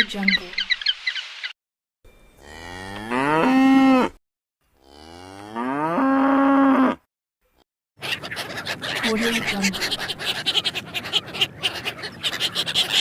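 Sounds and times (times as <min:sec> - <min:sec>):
cow mooing: 0:02.4 - 0:07.1.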